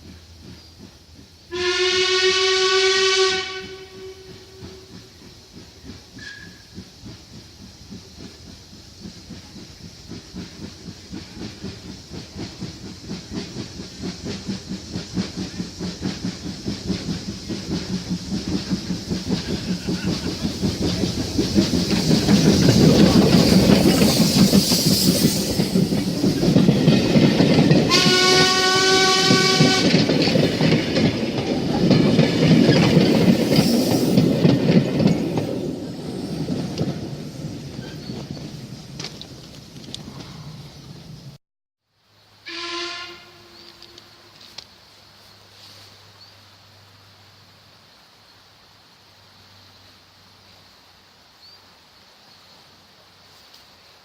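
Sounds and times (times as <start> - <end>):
steam locomotive exhaust beats: 0.0 - 41.4
steam whistle blast: 1.5 - 4.9, 27.9 - 30.0, 42.4 - 44.2.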